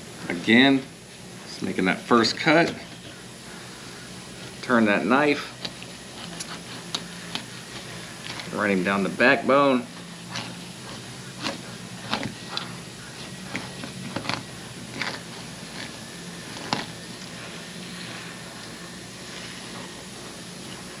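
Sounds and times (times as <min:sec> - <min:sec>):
knife crunching and scraping bones: 0:10.0 - 0:20.9.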